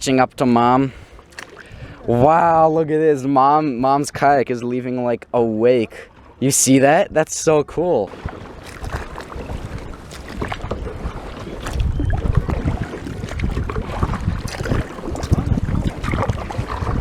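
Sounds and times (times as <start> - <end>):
paddle splashing water: 0.0 - 2.5, 5.8 - 17.0
wind buffeting microphone: 8.1 - 17.0.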